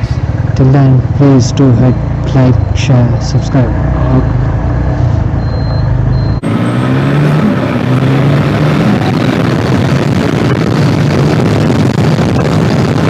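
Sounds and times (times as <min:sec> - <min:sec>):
motorcycle engine running: 0:00.0 - 0:13.0
wind rush: 0:06.9 - 0:13.0.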